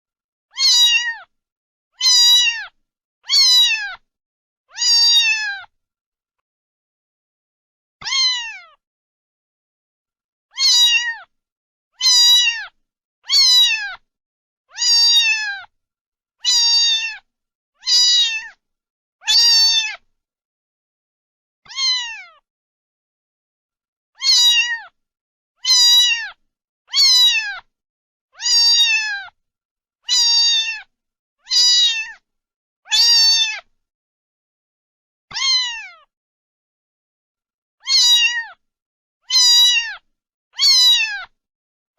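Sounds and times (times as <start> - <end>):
cat meowing: 0.5 - 1.3, 2.0 - 4.0, 4.7 - 5.7, 8.0 - 8.8, 10.5 - 11.3, 12.0 - 14.0, 14.7 - 15.7, 16.4 - 18.6, 19.2 - 20.0, 21.6 - 22.4, 24.2 - 25.0, 25.6 - 27.7, 28.4 - 29.4, 30.0 - 32.2, 32.9 - 33.7, 35.3 - 36.1, 37.8 - 38.6, 39.2 - 41.4.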